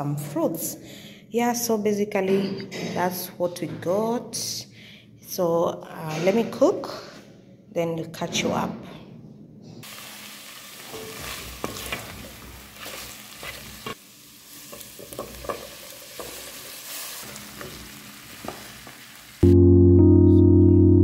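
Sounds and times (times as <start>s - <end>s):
food sizzling in a pan: 9.8s - 19.4s.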